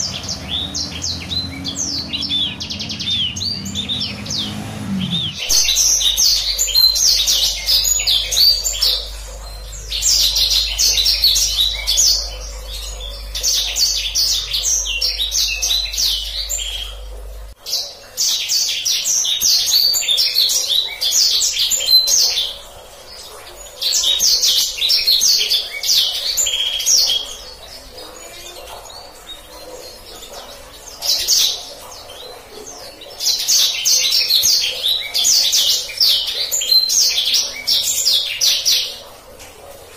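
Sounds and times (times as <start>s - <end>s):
bird singing rolling trills: 0.0s - 39.2s.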